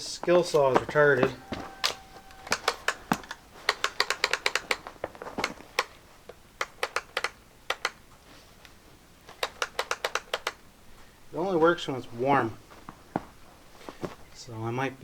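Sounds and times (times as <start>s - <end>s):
saw trigger switch clicking: 1.2s - 4.8s.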